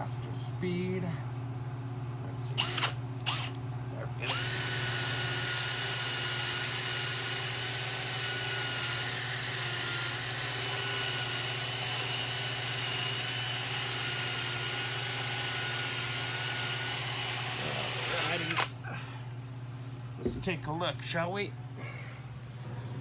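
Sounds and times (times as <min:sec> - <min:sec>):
electric drill scrubbing paint: 0:04.3 - 0:18.7.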